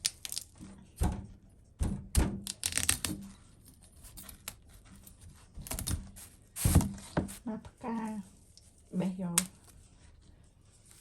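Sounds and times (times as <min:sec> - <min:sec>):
broccoli snapping and tearing: 0:00.0 - 0:00.5, 0:02.4 - 0:03.3.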